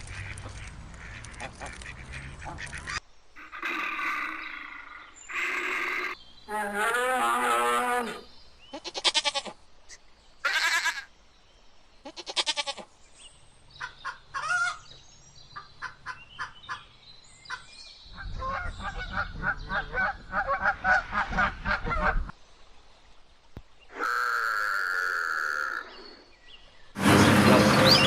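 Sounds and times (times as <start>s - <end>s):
farm animal calls: 0.0s - 9.6s, 23.9s - 26.2s.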